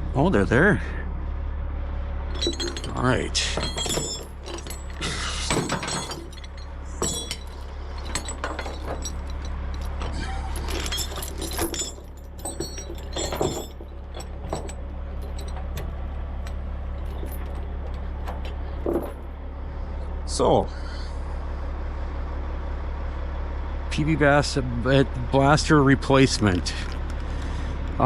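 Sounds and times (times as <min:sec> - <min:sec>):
steady low hum: 0:00.0 - 0:22.4
chains clinking and rattling: 0:02.3 - 0:19.3.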